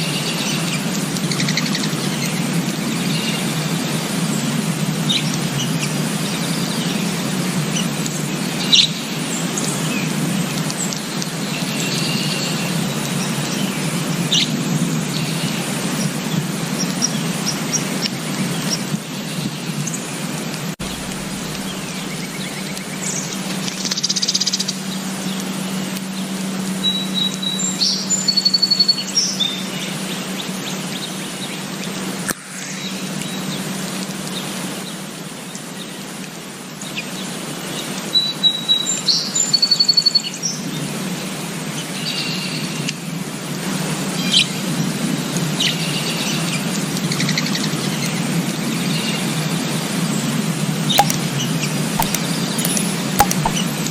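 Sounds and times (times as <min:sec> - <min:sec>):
small birds chirping and singing: 0:00.0 - 0:20.1
steady low hum: 0:20.8 - 0:26.8.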